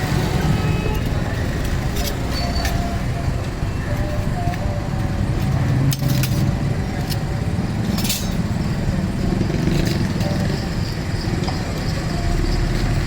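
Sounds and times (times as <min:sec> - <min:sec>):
low rumble of traffic: 0:00.0 - 0:13.0
sharp metallic clinks: 0:05.4 - 0:13.0.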